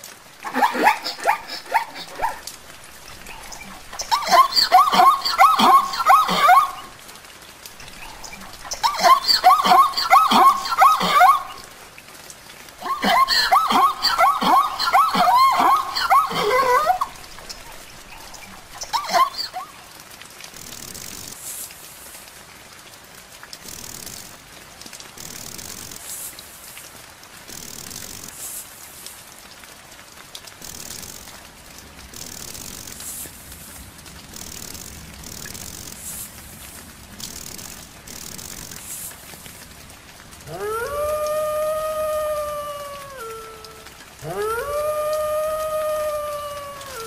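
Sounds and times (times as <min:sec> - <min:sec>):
wolf howling: 0:00.4 - 0:07.0, 0:07.8 - 0:11.8, 0:12.8 - 0:19.7, 0:40.4 - 0:47.0.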